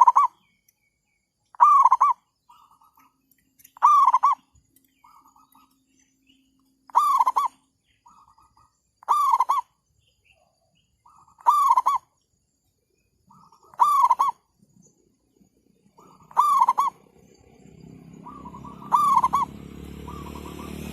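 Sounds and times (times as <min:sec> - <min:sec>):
dove cooing: 0:00.0 - 0:00.4, 0:01.5 - 0:03.0, 0:03.7 - 0:05.8, 0:06.9 - 0:09.8, 0:11.1 - 0:12.1, 0:13.3 - 0:14.5, 0:15.6 - 0:20.9.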